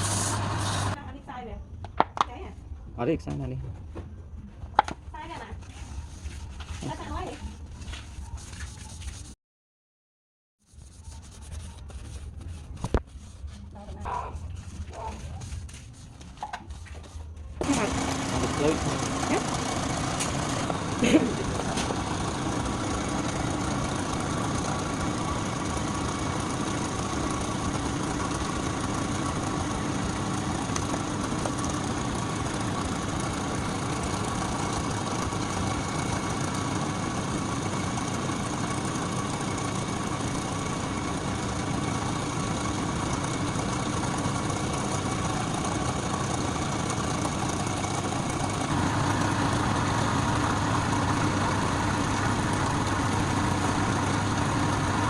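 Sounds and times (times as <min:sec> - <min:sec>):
workshop machine motor running: 0:00.0 - 0:01.0, 0:16.8 - 0:55.0.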